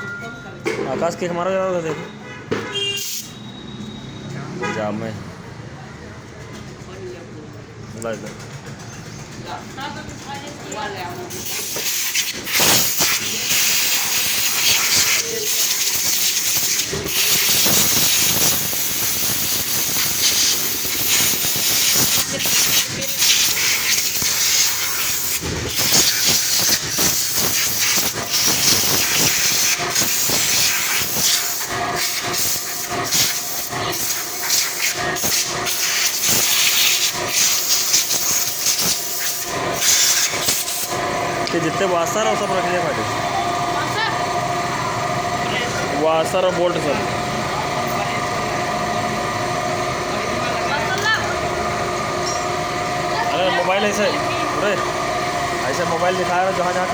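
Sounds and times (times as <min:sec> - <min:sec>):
high-pressure jet hissing: 0:02.9 - 0:03.5, 0:11.3 - 0:43.0.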